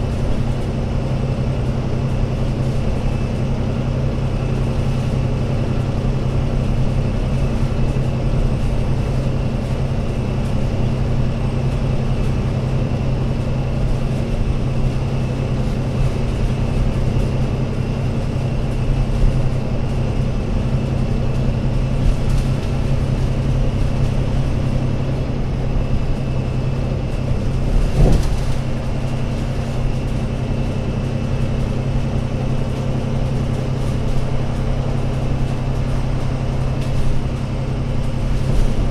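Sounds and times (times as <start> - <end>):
bus diesel engine droning: 0.0 - 38.9.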